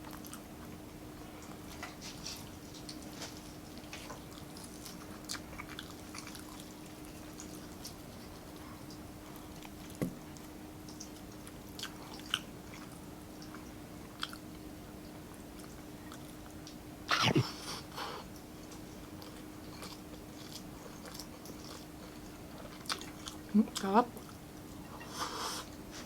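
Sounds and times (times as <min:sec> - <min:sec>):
faint steady hum: 0:00.0 - 0:26.0
person chewing: 0:04.0 - 0:09.9, 0:10.9 - 0:14.6, 0:17.4 - 0:24.4.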